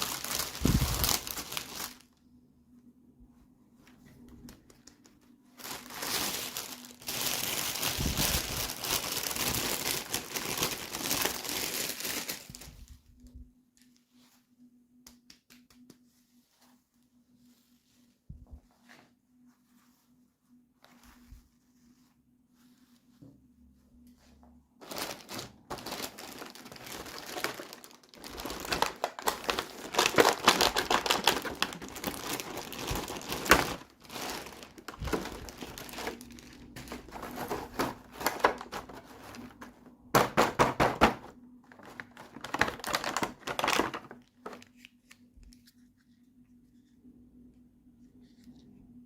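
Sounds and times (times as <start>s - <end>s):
packaging crinkling and rustling: 0.0s - 2.2s, 3.9s - 14.2s, 24.2s - 46.2s
faint steady hum: 0.0s - 40.3s, 41.1s - 49.0s.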